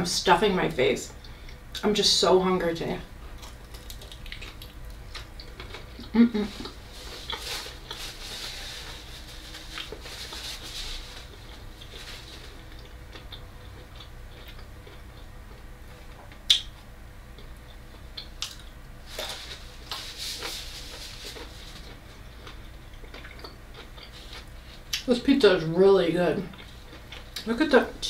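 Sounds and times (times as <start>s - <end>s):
wet chewing: 3.4s - 8.2s, 11.2s - 15.6s, 17.4s - 25.1s, 26.5s - 27.6s.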